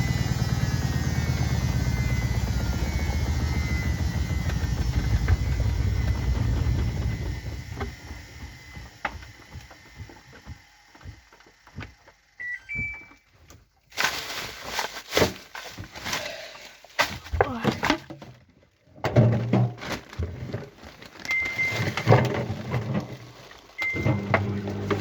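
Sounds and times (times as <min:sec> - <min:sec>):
loud irregular noise: 0:00.0 - 0:08.6
washing machine drum spinning: 0:00.0 - 0:12.0, 0:21.3 - 0:25.0
short electronic beeps: 0:12.4 - 0:13.3, 0:21.3 - 0:22.0.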